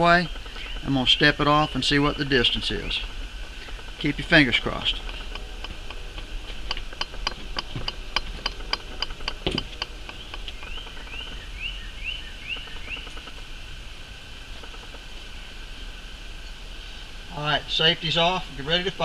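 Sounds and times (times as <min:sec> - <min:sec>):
songbird chipping and whistling: 0:00.0 - 0:06.0, 0:06.7 - 0:13.4.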